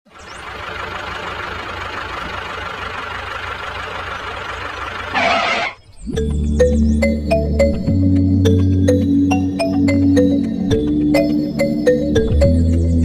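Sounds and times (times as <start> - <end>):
heavy engine humming: 0.1 - 13.0
loud hissing burst: 5.1 - 5.8
music: 6.0 - 13.0.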